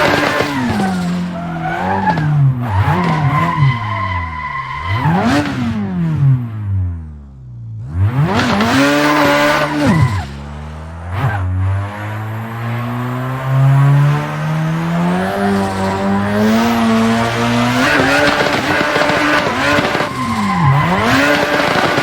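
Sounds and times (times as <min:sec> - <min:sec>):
car engine revving: 0:00.0 - 0:22.0
tyres squealing: 0:08.7 - 0:10.4, 0:15.3 - 0:22.0.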